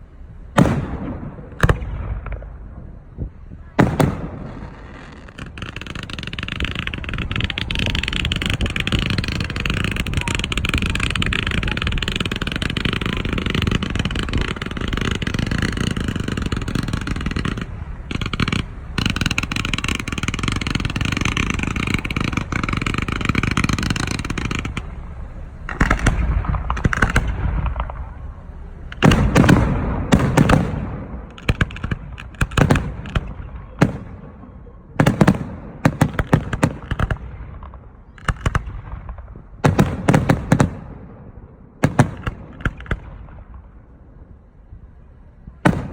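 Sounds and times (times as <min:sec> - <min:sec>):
fireworks crackling and hissing: 0:00.0 - 0:45.9
firework shell bursts and booms: 0:00.6 - 0:43.9, 0:45.6 - 0:45.9.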